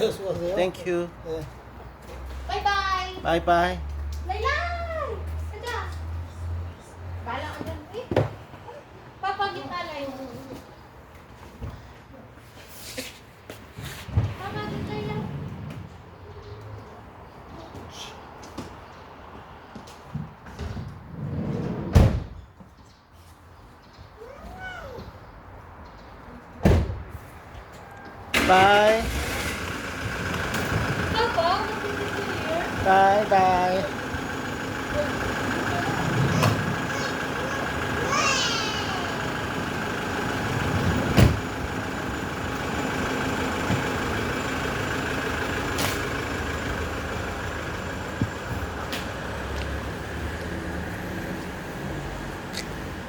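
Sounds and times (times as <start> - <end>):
engine running noise: 28.3 - 53.0.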